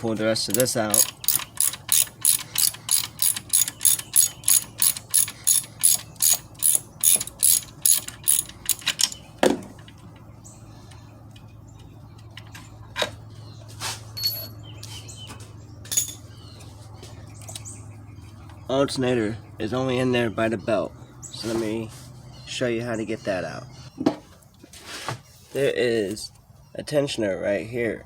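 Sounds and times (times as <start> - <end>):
hand ratchet clicking: 0.5 - 9.2.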